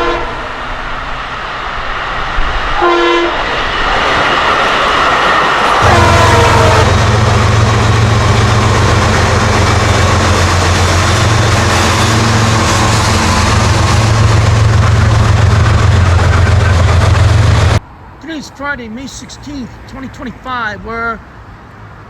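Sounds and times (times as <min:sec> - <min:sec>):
train horn: 0:00.0 - 0:01.1, 0:02.7 - 0:04.0, 0:05.8 - 0:17.5
train passing with rumble: 0:00.0 - 0:22.0.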